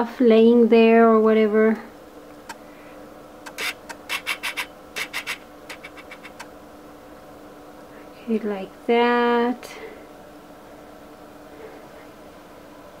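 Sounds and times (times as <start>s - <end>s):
scratchy rustles and clicks: 3.5s - 6.5s.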